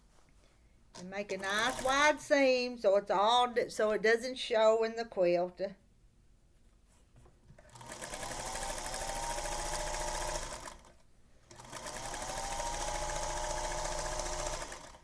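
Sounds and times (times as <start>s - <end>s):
electric sewing machine stitching: 1.3s - 2.2s, 7.7s - 15.0s.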